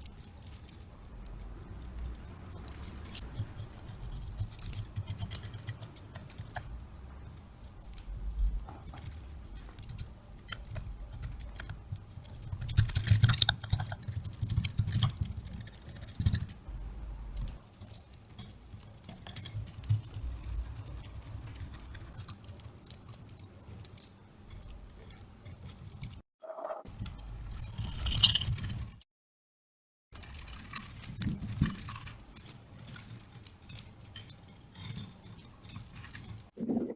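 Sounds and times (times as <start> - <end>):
metal parts clinking and scraping: 27.2 - 29.0.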